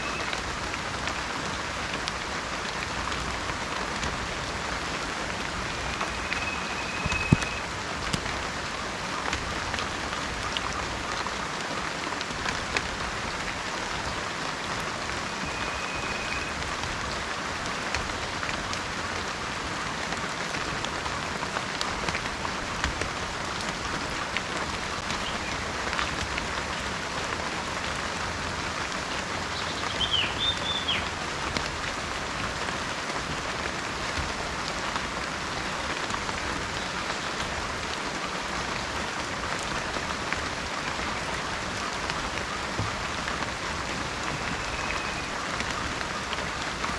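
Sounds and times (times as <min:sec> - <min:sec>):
heavy rain: 0:00.0 - 0:46.9
raindrops clicking close by: 0:00.0 - 0:46.9
high whistles: 0:05.7 - 0:07.7
wavering high call: 0:05.7 - 0:07.7.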